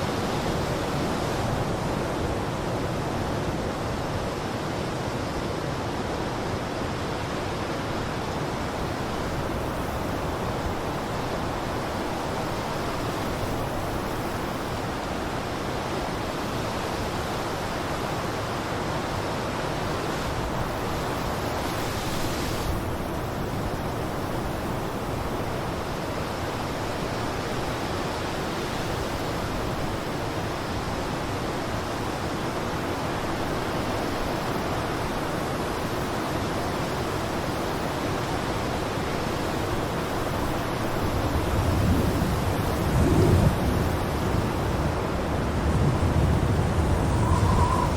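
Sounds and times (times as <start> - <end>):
blizzard wind blowing: 36.9 - 47.9.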